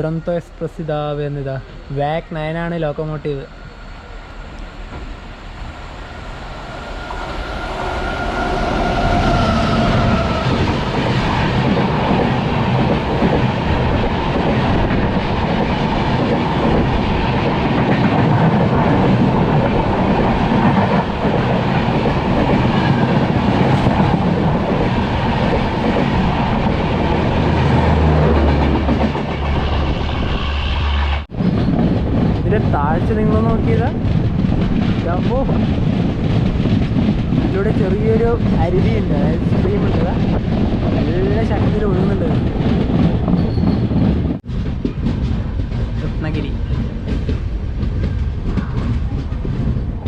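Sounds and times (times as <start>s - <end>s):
train wheels rumbling and clattering: 0.0s - 50.0s.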